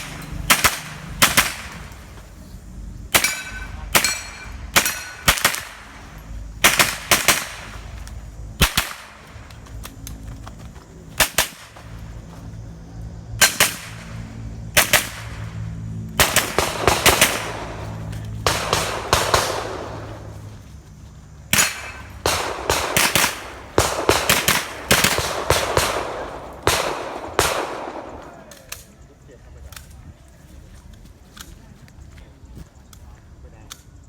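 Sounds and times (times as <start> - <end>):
rifle shots with echo: 0.0 - 2.1, 3.1 - 8.0, 8.6 - 9.4, 11.2 - 11.8, 14.8 - 15.6, 16.2 - 20.5, 21.5 - 28.6.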